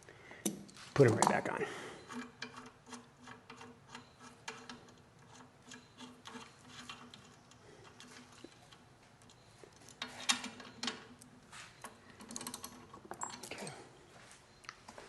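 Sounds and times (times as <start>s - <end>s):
metallic clicks of nuts and washers: 2.1s - 13.6s.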